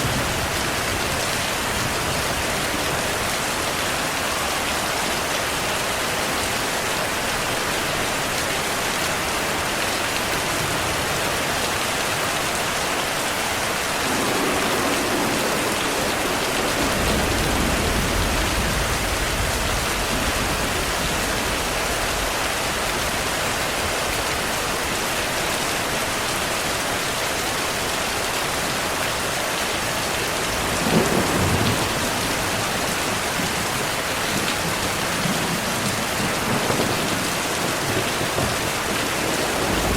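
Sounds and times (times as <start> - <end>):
heavy rain: 0.0 - 39.9
low thunder rumble: 13.9 - 23.2, 30.5 - 39.9
sharp thunderclap: 14.0 - 22.3, 30.6 - 32.7, 35.3 - 39.9.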